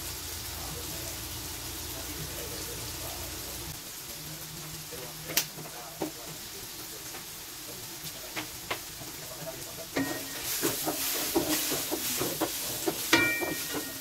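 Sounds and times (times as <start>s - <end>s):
meat sizzling in a wok: 0.0s - 14.0s
spatula scraping a wok: 9.9s - 14.0s
spatula knocking on pan: 10.0s - 14.0s.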